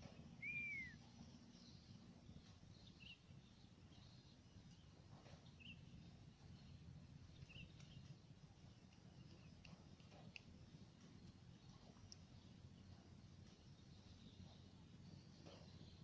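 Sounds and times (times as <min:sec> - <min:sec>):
faint bird chirps: 0:00.0 - 0:16.0
faint low rumble: 0:00.0 - 0:16.0
faint ticks: 0:06.4 - 0:14.6.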